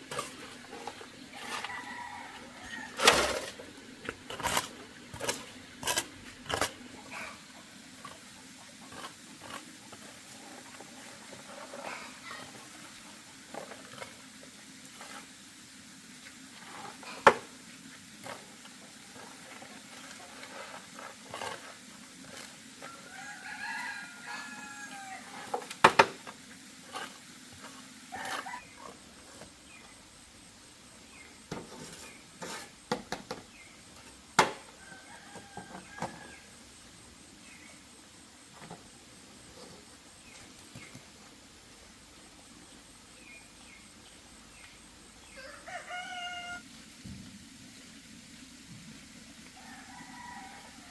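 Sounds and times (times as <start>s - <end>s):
rooster crowing: 1.4s - 3.3s, 22.9s - 25.4s, 34.7s - 36.6s, 45.3s - 46.6s, 49.6s - 50.9s.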